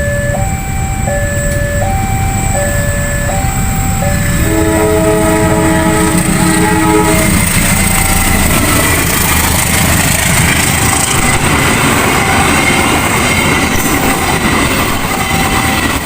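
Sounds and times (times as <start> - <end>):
level crossing alarm: 0.0 - 9.8
train rumbling: 0.0 - 16.0
train horn chord: 4.1 - 10.0, 10.6 - 13.3.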